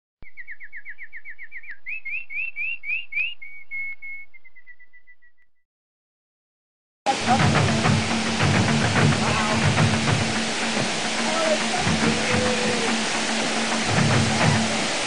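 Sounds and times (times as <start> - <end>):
bird song: 0.2 - 5.6.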